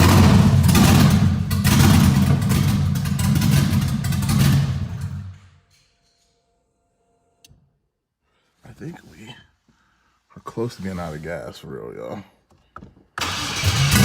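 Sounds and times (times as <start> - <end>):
engine running: 0.0 - 5.1, 13.2 - 14.0
click: 7.4 - 7.6.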